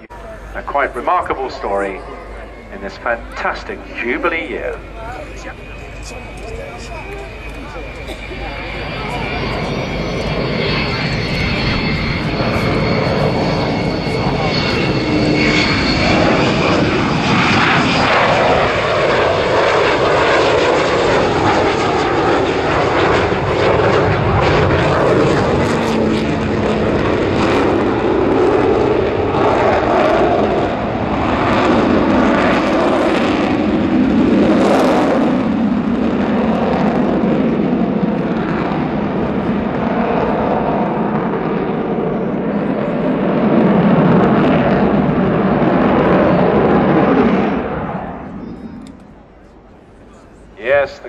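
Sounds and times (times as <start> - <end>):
aircraft howl: 0.0 - 51.0
jet engines roaring: 0.0 - 51.0.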